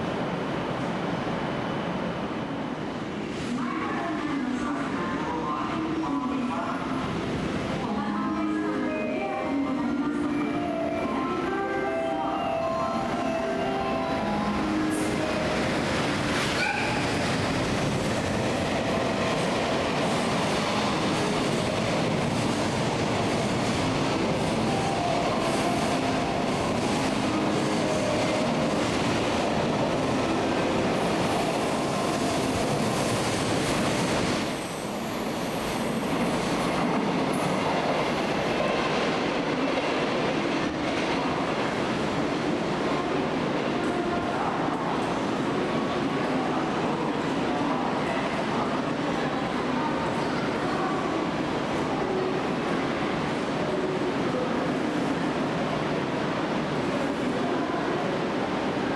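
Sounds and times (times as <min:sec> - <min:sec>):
high-pitched train squeal: 0:16.4 - 0:17.2.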